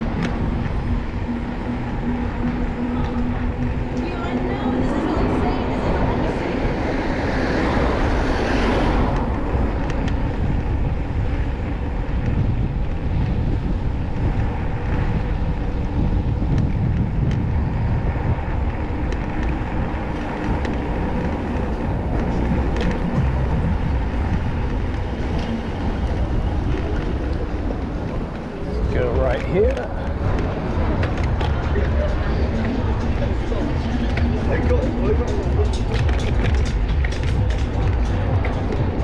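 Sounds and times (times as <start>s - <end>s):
rush of passing traffic: 0.0s - 39.0s
street traffic: 0.0s - 39.0s
wind rumbling on microphone: 0.0s - 39.0s.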